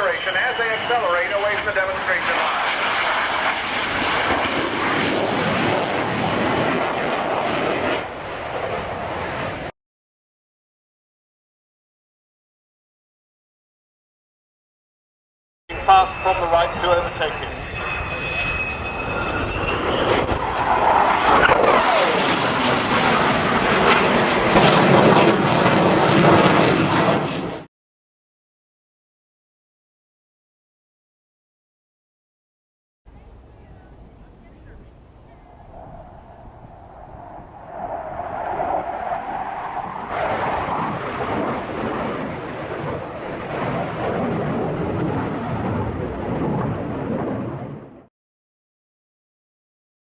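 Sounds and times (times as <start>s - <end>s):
jet aircraft flying past: 0.0s - 9.7s, 15.7s - 27.7s, 33.1s - 48.1s.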